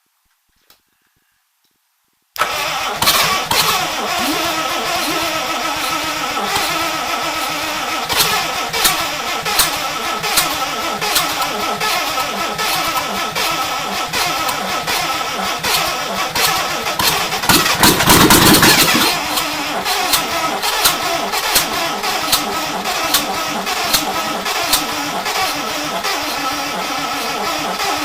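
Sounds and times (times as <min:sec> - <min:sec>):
engine cranking on starter: 0:02.4 - 0:28.0
engine firing and running: 0:02.4 - 0:28.0.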